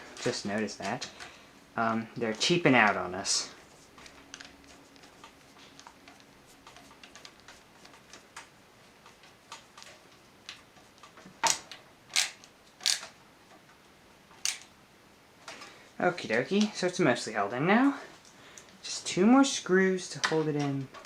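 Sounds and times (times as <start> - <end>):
sharp clicks: 11.4 - 13.1, 14.4 - 14.7
screwdriver driving screws: 11.5 - 13.1, 14.4 - 14.6.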